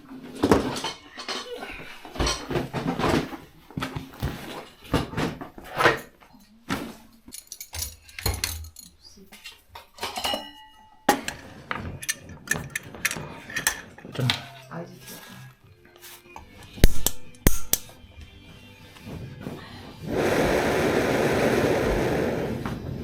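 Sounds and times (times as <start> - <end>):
dishes and cookware clattering: 0.0 - 18.0.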